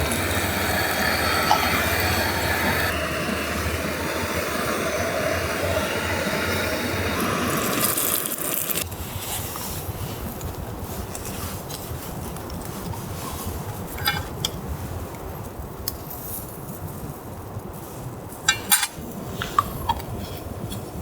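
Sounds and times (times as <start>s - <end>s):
metal cookware clinking: 14.0s - 14.6s, 18.5s - 20.1s.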